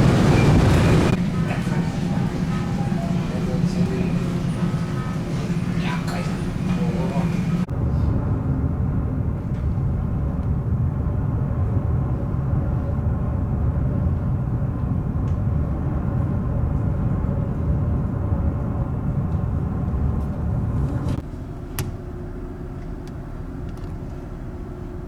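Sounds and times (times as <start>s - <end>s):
ship machinery rumble: 0.0s - 25.0s.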